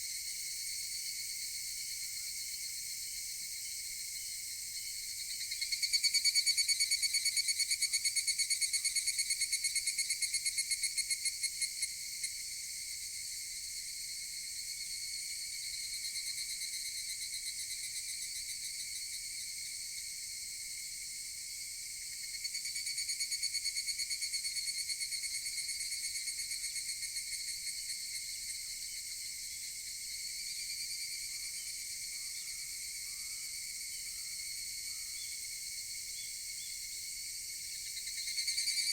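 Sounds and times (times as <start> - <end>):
cicada chorus: 0.0 - 38.9
cicada pulsed trill: 0.0 - 38.9
distant cicadas calling: 0.0 - 38.9.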